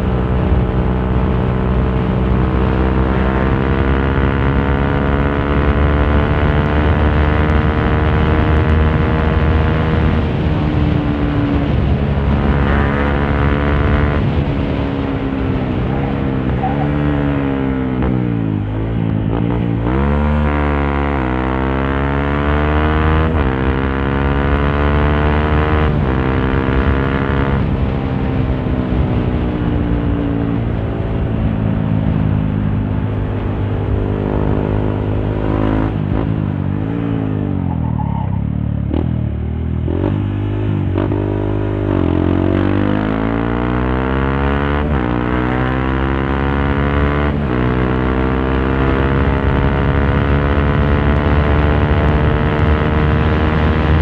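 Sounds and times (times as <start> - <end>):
motorcycle engine shifting gears: 0.0 - 54.0
wind rumble: 0.0 - 54.0.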